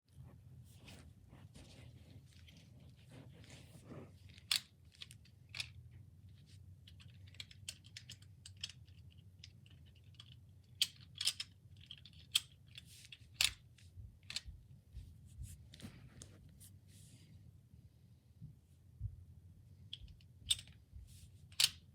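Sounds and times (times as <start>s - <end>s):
plastic bricks clicking: 6.9s - 13.6s.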